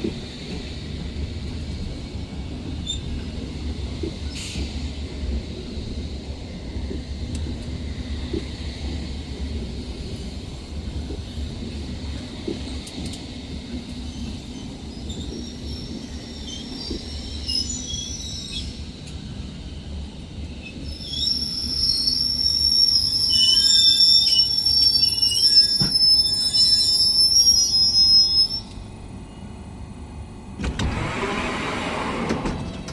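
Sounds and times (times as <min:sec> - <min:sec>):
train rumbling: 0:00.0 - 0:32.9
wheels squealing on rails: 0:14.0 - 0:19.2, 0:19.8 - 0:28.9.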